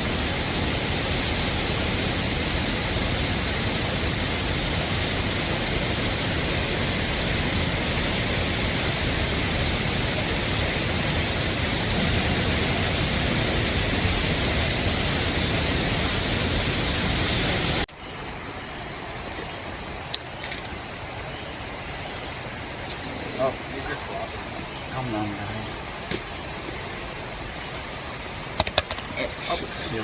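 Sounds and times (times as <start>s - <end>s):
loud rushing noise: 9.0s - 17.9s.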